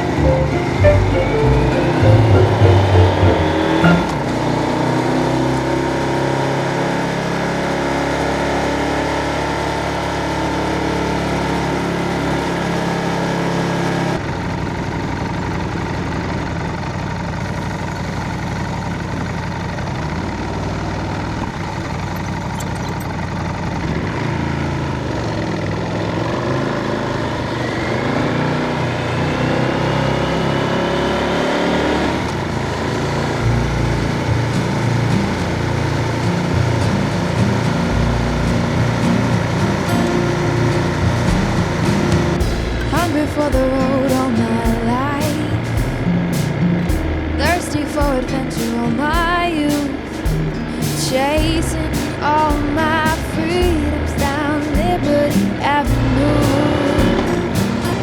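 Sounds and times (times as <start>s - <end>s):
motorcycle engine running: 33.4s - 58.0s.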